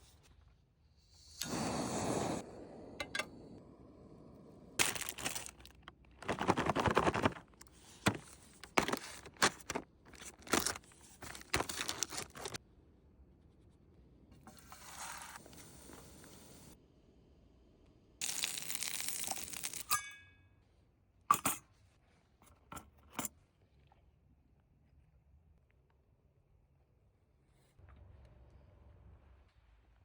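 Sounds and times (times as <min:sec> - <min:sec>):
food packaging crinkling and tearing: 0:04.8 - 0:12.6, 0:18.2 - 0:19.9.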